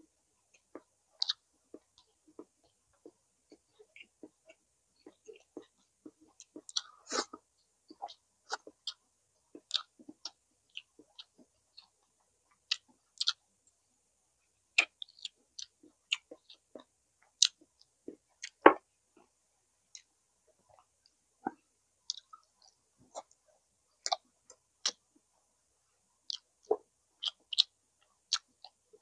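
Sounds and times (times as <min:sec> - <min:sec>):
wet chewing and lip smacks: 0:00.6 - 0:13.4, 0:14.8 - 0:18.6, 0:20.7 - 0:23.4, 0:24.0 - 0:25.0, 0:26.3 - 0:28.8.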